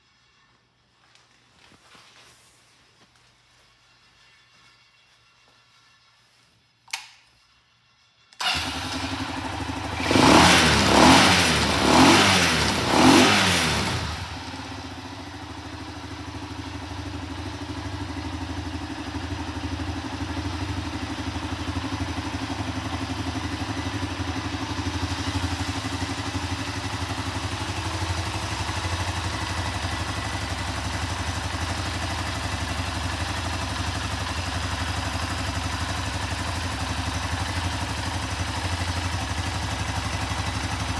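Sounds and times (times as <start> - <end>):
motorcycle engine revving and idling: 8.4 - 40.9.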